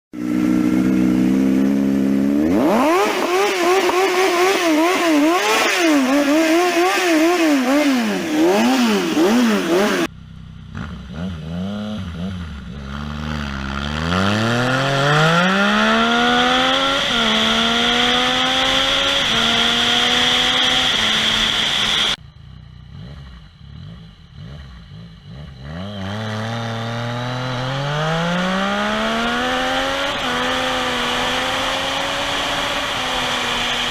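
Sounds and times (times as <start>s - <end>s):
motorcycle engine revving: 0.1s - 33.9s.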